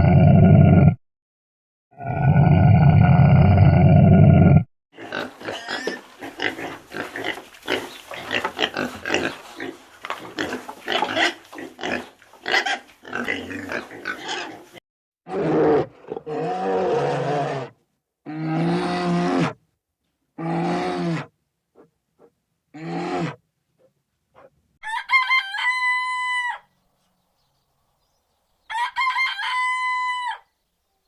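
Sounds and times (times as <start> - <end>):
pig grunting: 2.0 - 19.6, 20.4 - 24.5
pitched animal call: 20.4 - 23.4.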